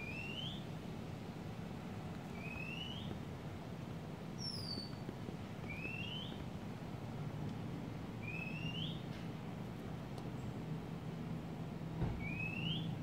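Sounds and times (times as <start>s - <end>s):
bird whistling: 0.0s - 0.6s, 2.4s - 3.1s, 4.4s - 5.0s, 5.7s - 6.3s, 8.2s - 9.0s, 12.2s - 13.0s.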